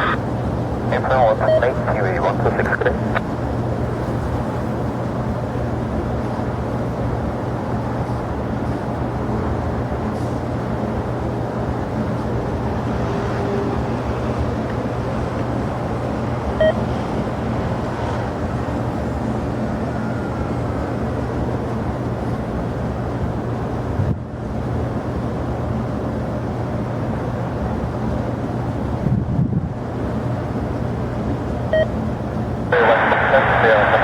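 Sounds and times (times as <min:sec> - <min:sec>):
jet engines roaring: 0:00.0 - 0:07.8, 0:10.9 - 0:23.4, 0:32.5 - 0:34.0
constant low hum: 0:00.0 - 0:12.8, 0:20.8 - 0:34.0.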